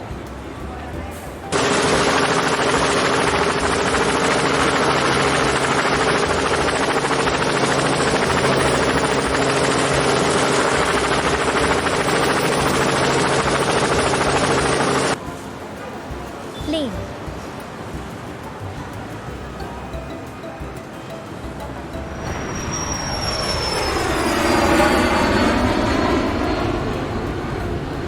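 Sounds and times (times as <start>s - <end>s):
helicopter rotor and engine: 1.5s - 15.2s, 22.1s - 28.0s.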